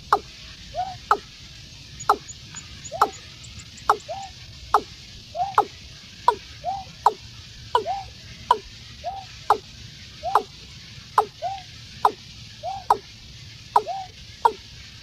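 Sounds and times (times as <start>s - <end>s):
steady hiss: 0.0s - 15.0s
watercock calling: 0.0s - 15.0s.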